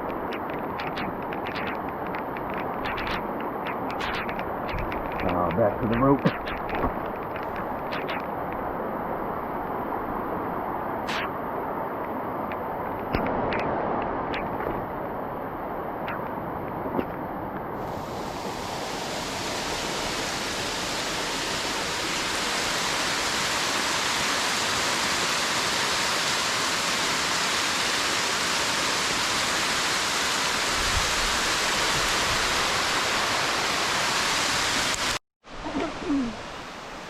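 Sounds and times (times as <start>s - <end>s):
waterfall and river rushing: 0.0s - 37.0s.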